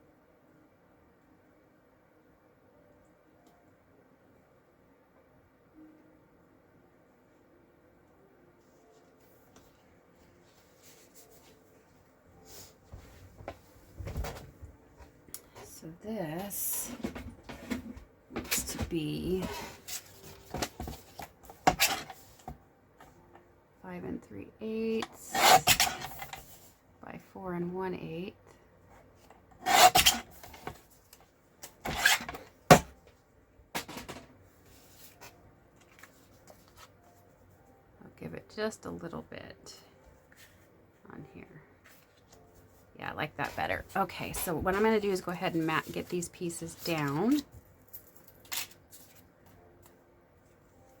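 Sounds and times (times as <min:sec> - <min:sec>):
paper trimmer blade scraping: 0:25.2 - 0:26.2, 0:29.6 - 0:30.3
paper handling: 0:34.6 - 0:37.2.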